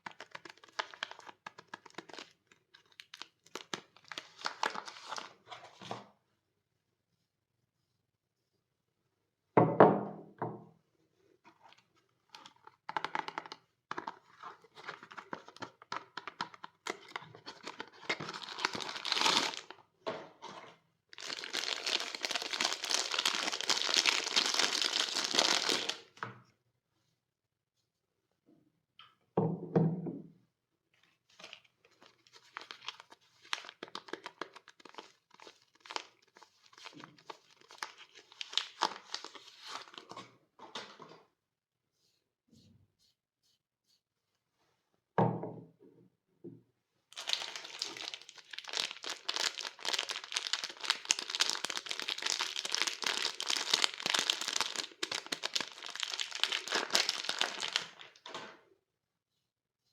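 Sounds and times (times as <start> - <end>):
wrapping crinkling and tearing: 0.0 - 5.5, 11.5 - 19.8, 21.1 - 26.2, 31.3 - 40.2, 47.1 - 58.2.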